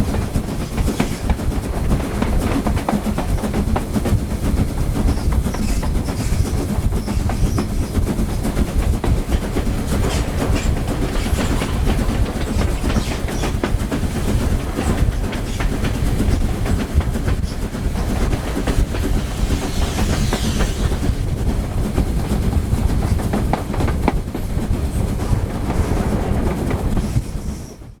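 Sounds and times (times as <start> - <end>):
wheels clicking over rail joints: 0.0 - 19.3, 21.2 - 27.8
railway carriage rumbling: 0.0 - 28.0
high wheel squeal: 19.1 - 21.2.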